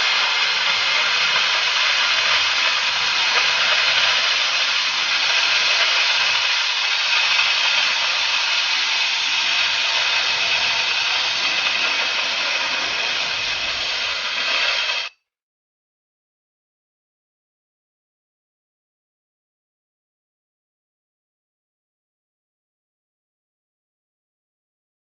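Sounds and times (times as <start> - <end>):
cutting torch hissing: 0.0 - 15.1.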